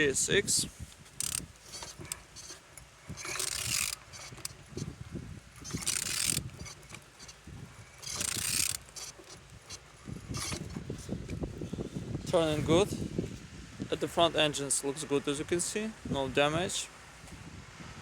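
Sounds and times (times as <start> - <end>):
engine turned over by hand: 0.9 - 12.4.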